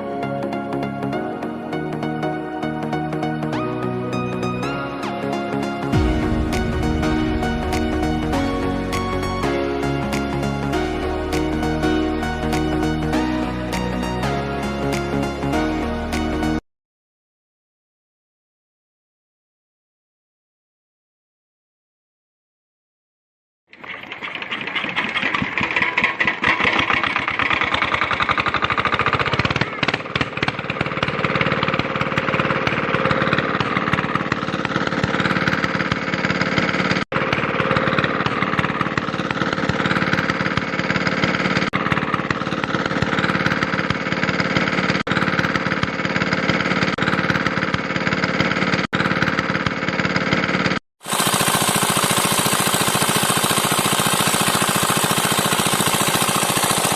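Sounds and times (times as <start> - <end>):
miniature diesel engine knocking: 23.8 - 56.9.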